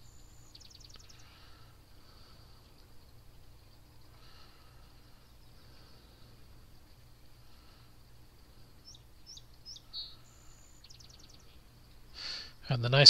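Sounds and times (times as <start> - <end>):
small bird chirping: 0.0 - 13.0.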